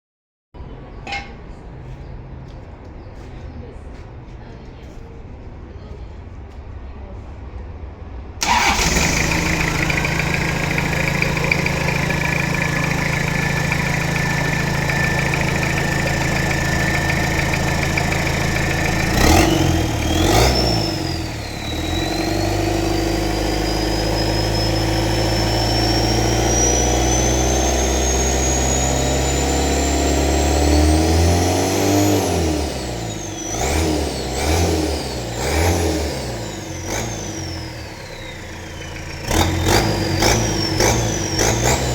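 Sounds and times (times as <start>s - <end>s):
turbo whine: 8.4s - 30.6s
diesel engine revving: 8.4s - 41.9s.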